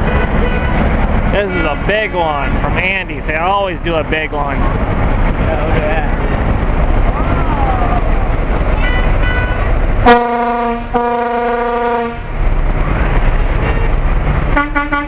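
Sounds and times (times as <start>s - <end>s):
truck horns honking: 0.0s - 3.1s, 8.7s - 12.5s, 14.5s - 15.0s
steady low rumble: 0.0s - 15.0s.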